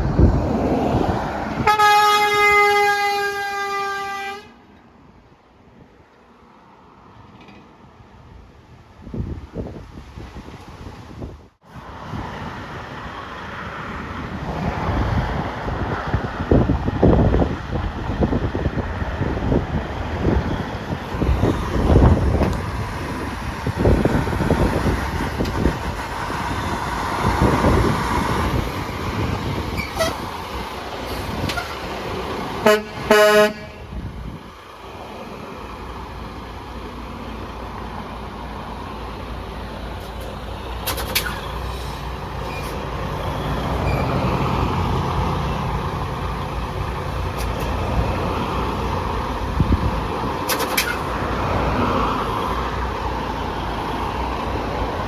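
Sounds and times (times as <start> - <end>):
truck engine passing: 0.0 - 4.3, 11.6 - 55.0
road traffic: 0.0 - 55.0
truck horn blasts: 1.6 - 4.6, 29.8 - 30.3, 32.6 - 34.0.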